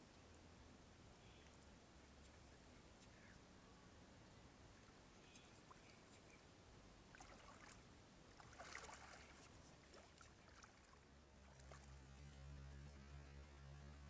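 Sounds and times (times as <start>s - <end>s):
low steady hum: 0.0s - 14.0s
faint water splashes: 4.6s - 13.2s.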